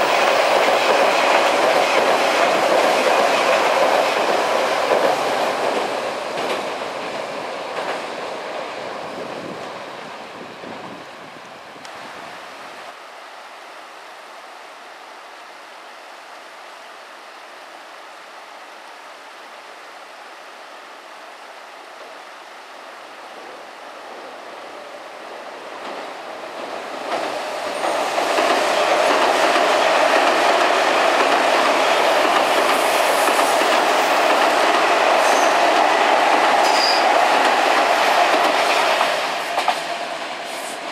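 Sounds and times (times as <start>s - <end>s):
electric train passing: 0.0s - 40.9s
steady background hiss: 0.0s - 40.9s.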